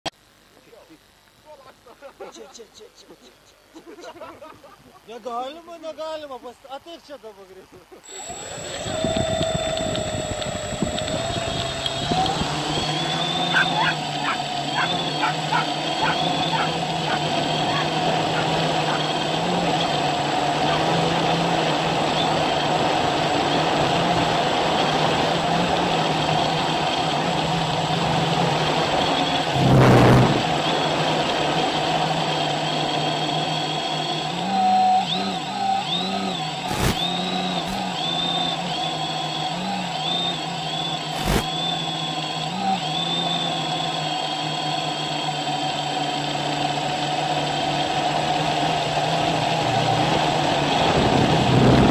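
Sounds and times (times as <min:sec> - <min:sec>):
drone motors and propellers humming: 0:08.0 - 0:51.9
sharp clicks: 0:08.1 - 0:14.9, 0:36.6 - 0:37.9, 0:41.2 - 0:41.6
loud rushing burst: 0:29.5 - 0:30.5, 0:36.7 - 0:37.1.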